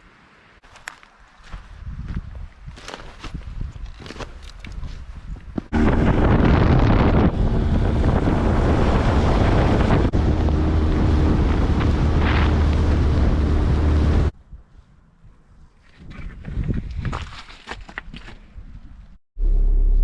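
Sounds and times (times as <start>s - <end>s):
wind buffeting microphone: 1.4s - 17.4s
boat motor running: 5.7s - 14.3s.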